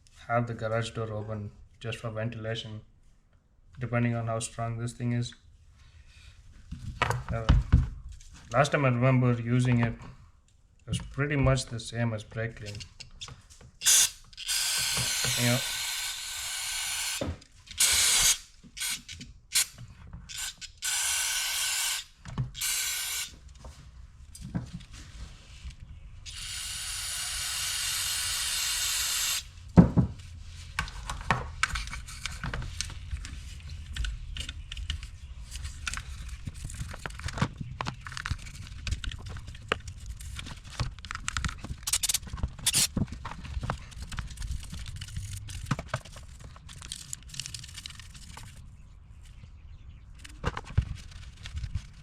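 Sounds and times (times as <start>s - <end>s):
clicks of parts being handled: 37.0s - 42.9s.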